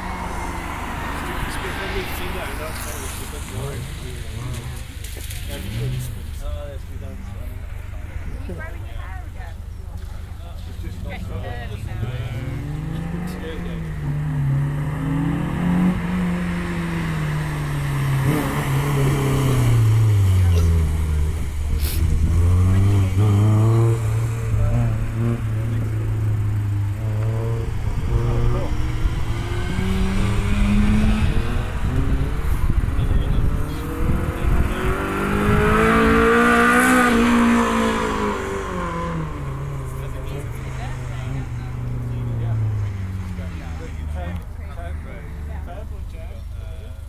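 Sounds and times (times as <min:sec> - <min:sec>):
car engine running hard: 0:00.0 - 0:47.0
wind buffeting microphone: 0:27.6 - 0:37.9.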